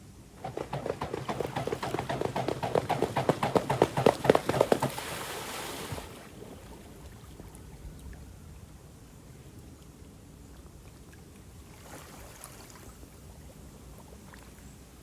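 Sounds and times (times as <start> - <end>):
swan feet slapping water: 0.4 - 7.6
rushing splash: 0.5 - 6.3.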